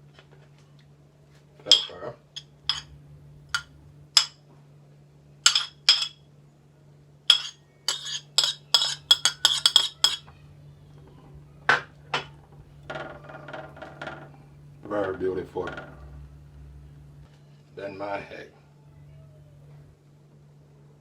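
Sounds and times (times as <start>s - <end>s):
steady low hum: 0.9s - 21.0s
utensil clinking on dishware: 1.7s - 2.9s, 3.5s - 4.4s, 5.4s - 6.2s, 7.3s - 10.3s.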